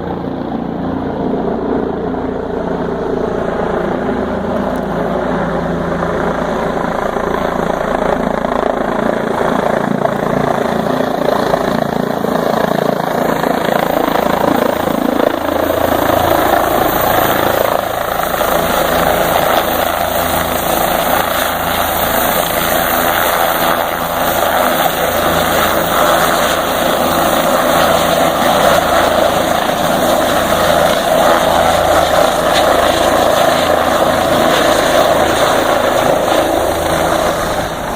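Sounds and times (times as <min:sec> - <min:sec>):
low hum: 0:00.0 - 0:20.4
loud engine drone: 0:00.0 - 0:37.9.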